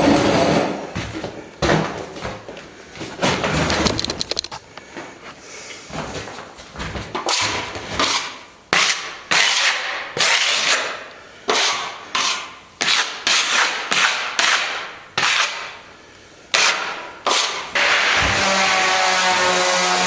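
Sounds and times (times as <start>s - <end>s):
hand tool scraping plaster: 0.0s - 1.3s, 5.9s - 15.8s, 16.5s - 20.0s.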